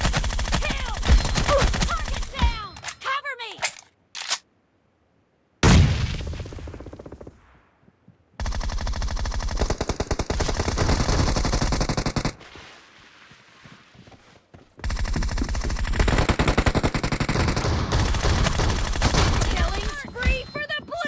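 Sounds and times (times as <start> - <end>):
video game machine-gun fire: 14.9 - 20.0.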